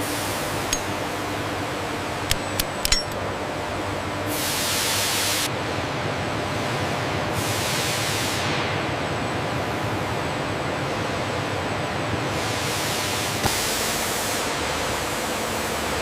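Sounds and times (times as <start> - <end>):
sharp clicks: 2.3 - 3.2.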